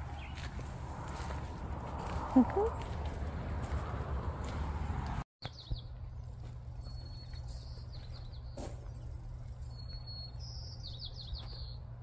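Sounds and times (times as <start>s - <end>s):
songbird singing: 0.0s - 0.8s, 4.9s - 12.0s.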